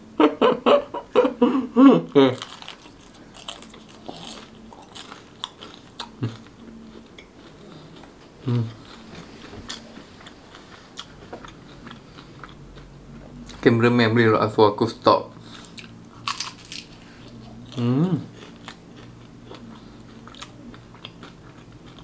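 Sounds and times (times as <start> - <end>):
chewing crispy fried food: 2.2 - 13.6, 15.4 - 22.0.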